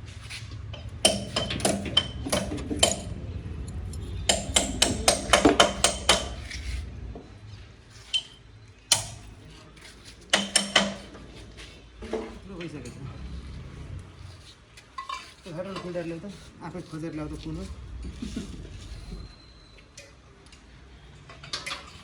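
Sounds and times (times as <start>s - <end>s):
low steady rumble: 0.0s - 9.7s, 11.0s - 19.8s
metal tools clinking: 8.0s - 8.4s.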